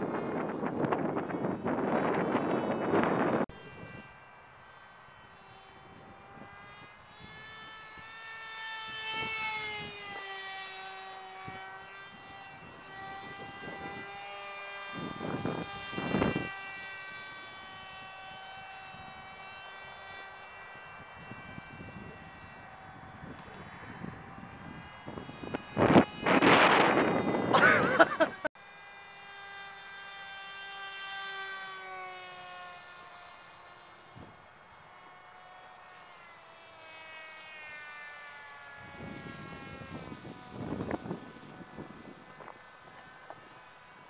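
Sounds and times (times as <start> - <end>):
wind gusts on microphone: 0.0 - 4.1, 11.4 - 14.2, 14.8 - 16.6, 20.9 - 28.5, 38.8 - 43.7
model airplane motor whining: 0.0 - 44.0.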